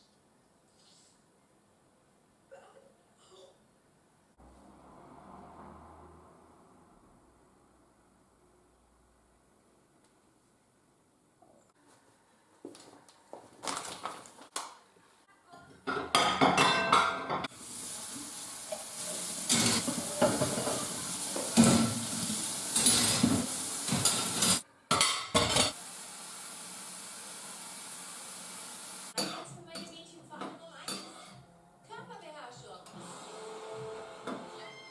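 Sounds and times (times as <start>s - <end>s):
dishes and cutlery clinking: 15.6s - 17.5s, 18.7s - 22.0s, 22.8s - 25.8s, 29.2s - 31.4s.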